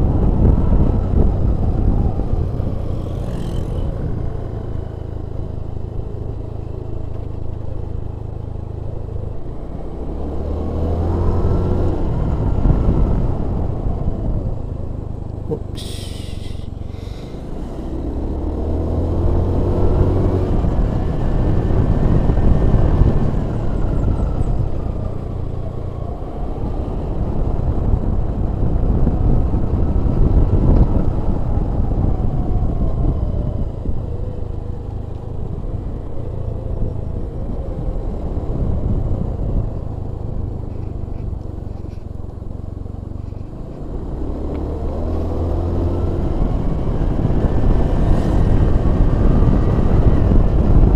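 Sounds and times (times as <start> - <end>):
low road rumble: 0.0 - 50.9
vehicle engine revving: 9.7 - 13.9, 15.4 - 24.7.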